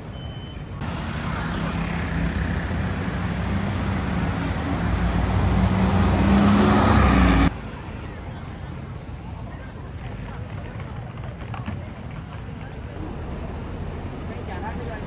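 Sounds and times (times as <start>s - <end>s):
vehicle engine approaching: 0.8s - 7.5s.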